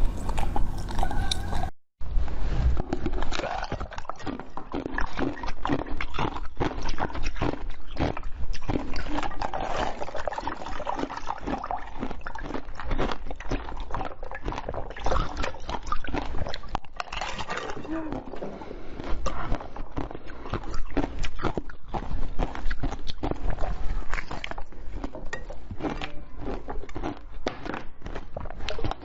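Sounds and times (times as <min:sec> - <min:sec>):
wet chewing and mouth clicks: 0:00.0 - 0:01.7, 0:02.8 - 0:29.0.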